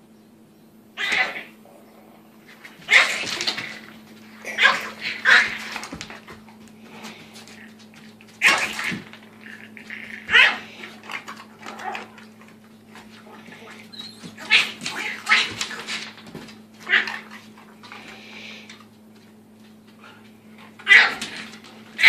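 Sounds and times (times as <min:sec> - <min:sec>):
puppy barking and growling: 0:01.0 - 0:06.2, 0:08.4 - 0:16.1, 0:16.8 - 0:17.6, 0:20.7 - 0:22.0.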